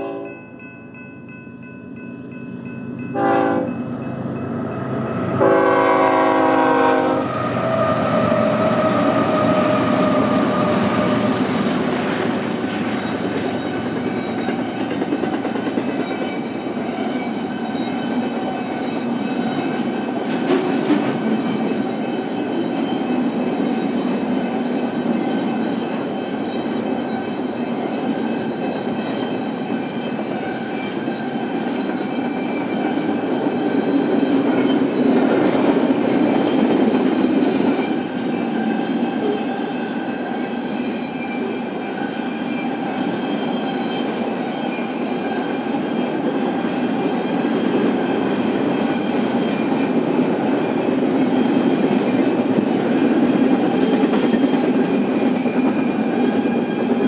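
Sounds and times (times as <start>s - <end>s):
locomotive horn chord: 0.0s - 0.4s, 3.1s - 3.8s, 5.1s - 7.3s
train cars rolling on rails: 1.9s - 57.0s.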